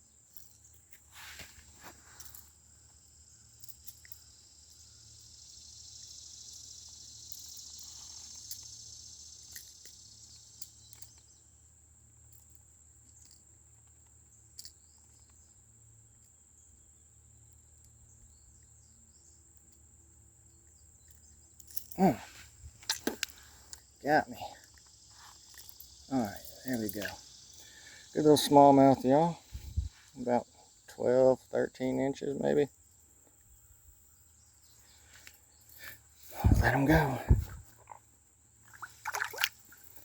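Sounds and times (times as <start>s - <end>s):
insects buzzing: 0.0s - 40.0s.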